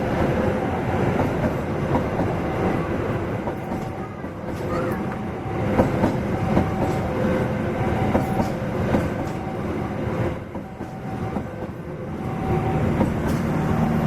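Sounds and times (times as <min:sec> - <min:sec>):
train rolling rumble: 0:00.0 - 0:14.0
train wheels clacking over rail joints: 0:03.2 - 0:09.6, 0:12.8 - 0:14.0.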